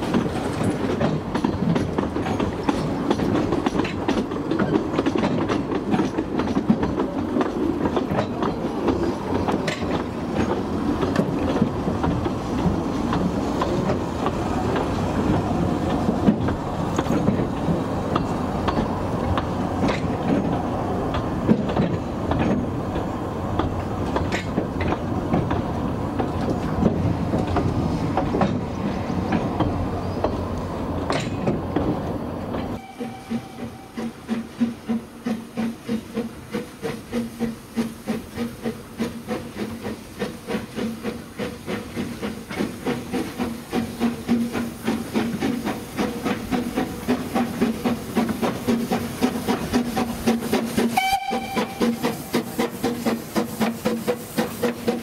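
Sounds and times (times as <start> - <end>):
wheels clattering over rail joints: 0.0 - 32.8
train rumbling: 0.0 - 55.0.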